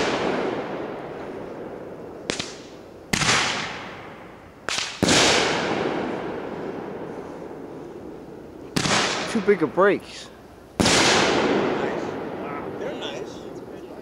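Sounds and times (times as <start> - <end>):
loud firework bangs: 0.0 - 13.9
small firework pops: 2.2 - 4.0, 4.6 - 6.2, 8.7 - 9.4.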